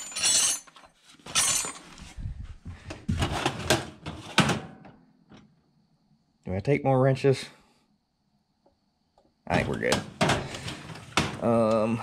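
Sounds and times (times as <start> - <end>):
wrenches clanking and rattling: 0.0 - 2.0.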